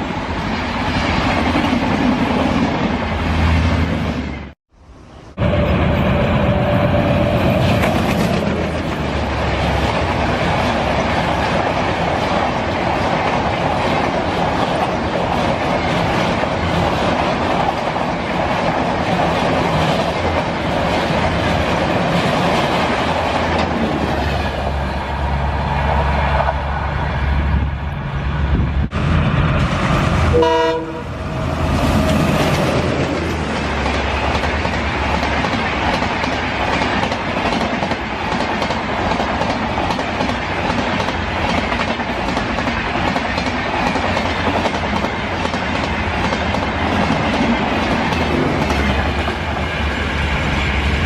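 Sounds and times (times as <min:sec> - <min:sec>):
train wheels clattering on rails: 0:05.6 - 0:24.8, 0:31.8 - 0:51.0.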